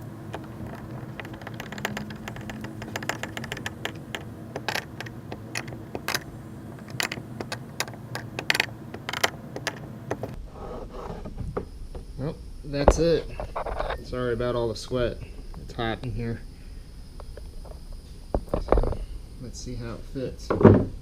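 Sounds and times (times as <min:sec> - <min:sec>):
clicks and rattles of hand tools: 0:00.0 - 0:10.4
low steady hum: 0:00.0 - 0:21.0.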